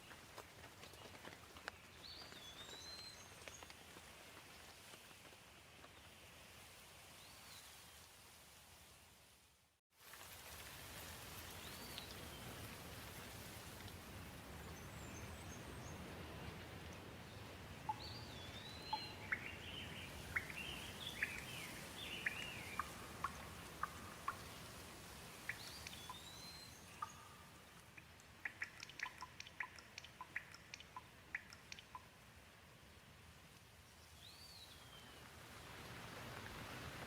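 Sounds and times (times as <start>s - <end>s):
light rain hissing: 0.0s - 37.0s
sharp ticks: 28.0s - 32.1s.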